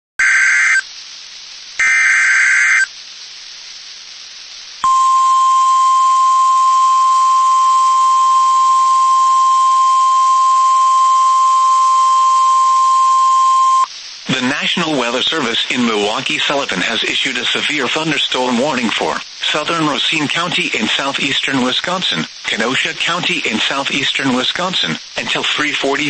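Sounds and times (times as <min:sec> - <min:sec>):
buzzy digital data bursts: 0:00.2 - 0:00.9, 0:01.8 - 0:03.0
steady warning alarm tone: 0:01.8 - 0:02.9, 0:04.8 - 0:13.9.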